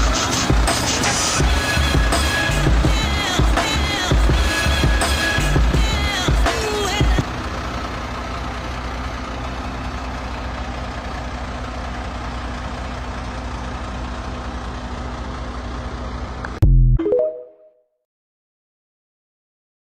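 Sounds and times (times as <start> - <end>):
music: 0.0 - 7.2, 16.6 - 17.8
truck engine idling: 0.0 - 16.6.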